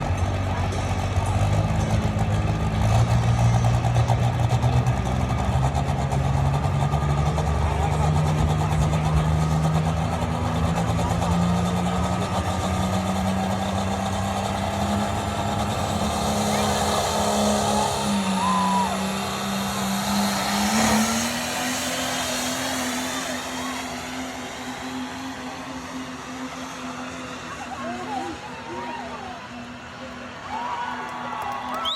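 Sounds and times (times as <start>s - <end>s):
truck engine running hard: 0.0s - 31.9s.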